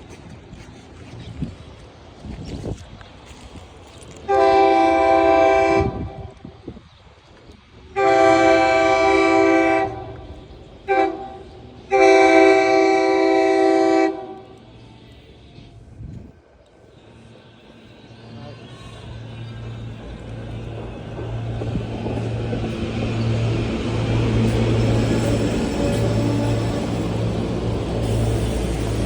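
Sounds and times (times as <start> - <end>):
low rumble of train: 0.0 - 29.0
train horn blasts: 4.3 - 6.4, 7.9 - 15.7.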